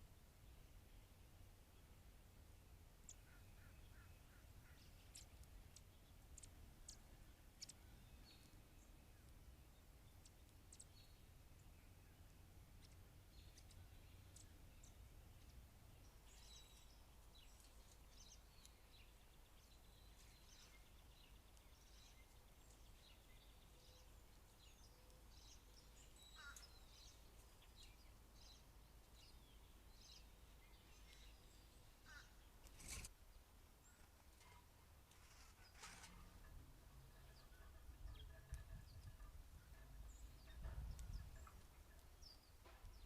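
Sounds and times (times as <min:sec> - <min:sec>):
faint birds chirping: 0:00.0 - 0:43.0.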